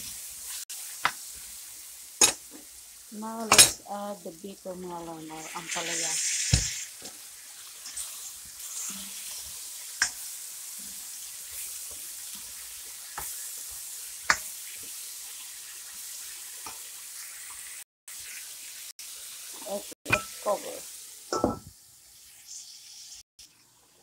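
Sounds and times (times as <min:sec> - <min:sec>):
vegetables sizzling in a wok: 0:00.0 - 0:24.0.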